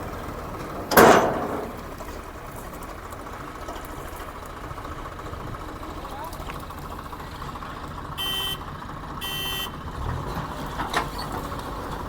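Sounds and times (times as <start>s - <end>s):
loud crash: 0.9s - 1.9s.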